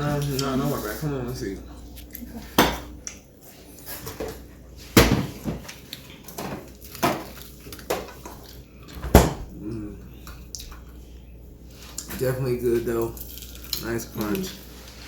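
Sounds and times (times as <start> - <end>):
crunchy chewing of fried chicken: 5.7 - 9.0, 12.9 - 15.0.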